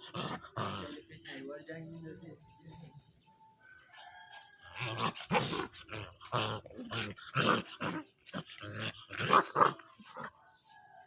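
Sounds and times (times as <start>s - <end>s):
puppy growling and barking: 0.0s - 1.0s, 4.7s - 10.4s.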